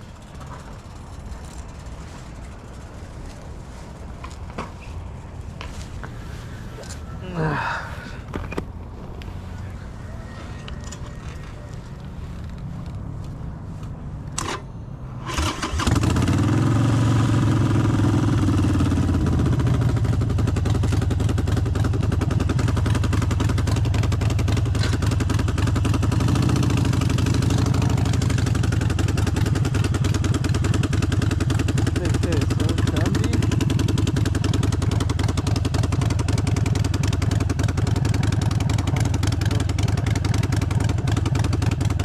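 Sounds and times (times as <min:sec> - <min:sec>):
motorcycle engine cranking: 0:14.4 - 0:16.6
motorcycle engine running loudly: 0:15.8 - 0:42.0.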